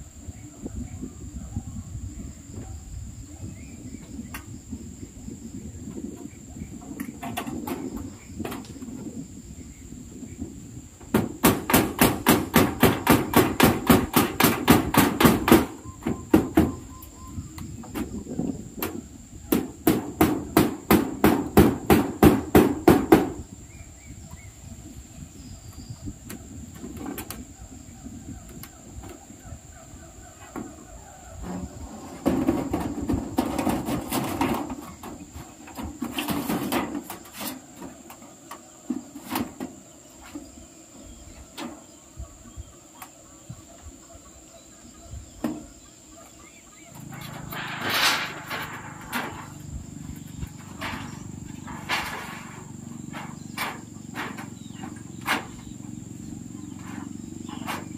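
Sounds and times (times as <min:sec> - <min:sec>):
high insect drone: 0:00.0 - 0:57.9.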